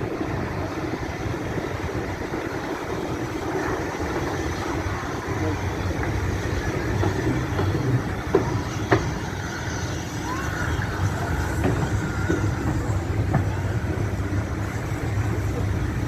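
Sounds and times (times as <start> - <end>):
train rumbling: 0.0 - 16.0
faint high squeals: 8.4 - 13.8.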